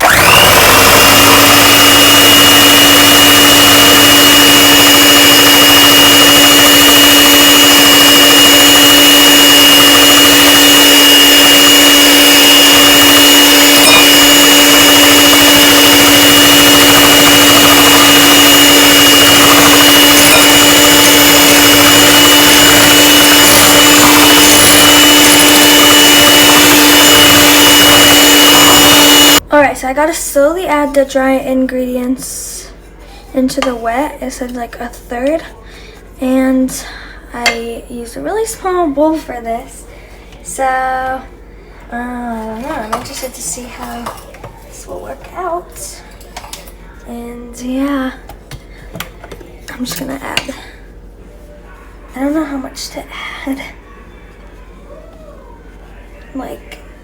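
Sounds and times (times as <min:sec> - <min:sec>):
electric mixer motor running: 0:00.0 - 0:29.4.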